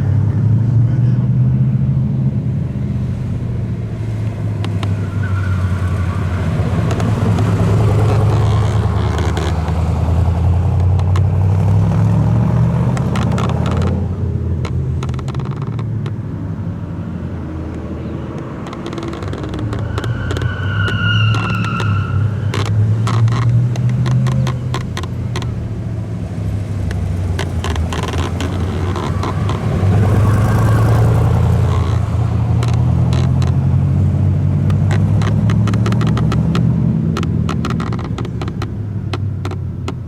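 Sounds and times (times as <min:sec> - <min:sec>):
car engine rumbling: 0:00.0 - 0:40.0.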